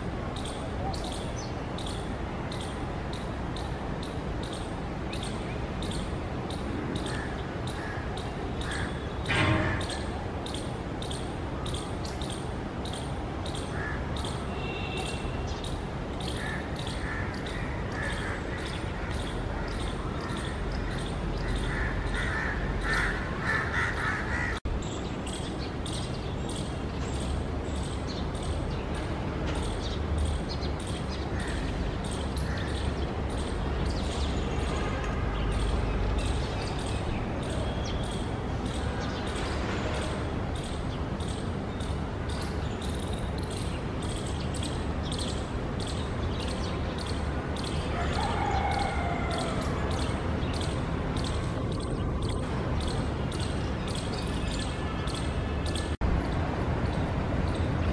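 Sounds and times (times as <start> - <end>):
birds calling: 0.0 - 34.8
steady outdoor hiss: 0.0 - 57.9.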